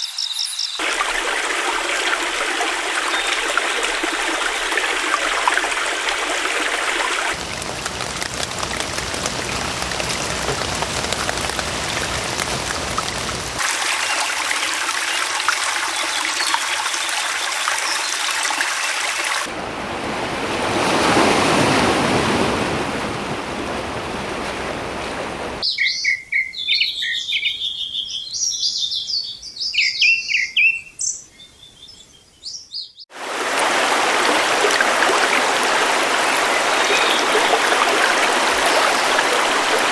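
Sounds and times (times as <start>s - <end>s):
birds chirping: 0.0s - 0.8s, 7.3s - 19.4s, 25.6s - 33.1s
flowing water: 0.8s - 25.6s, 33.1s - 39.9s.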